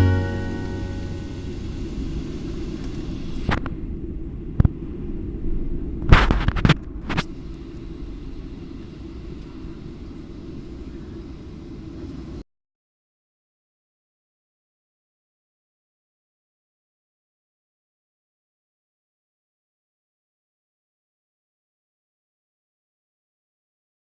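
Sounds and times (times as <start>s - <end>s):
airliner cabin rumble: 0.0s - 12.4s.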